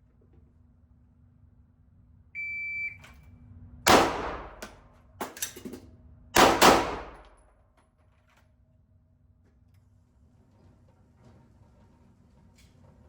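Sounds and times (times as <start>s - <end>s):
shot timer beep: 2.4s - 3.1s
pistol shots indoors: 3.9s - 5.5s, 6.4s - 7.8s.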